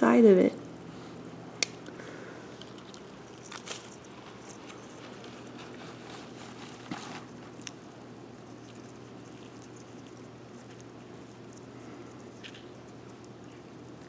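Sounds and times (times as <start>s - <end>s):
steady low hum: 0.0s - 14.0s
skink scratching in plastic bucket: 2.8s - 7.7s.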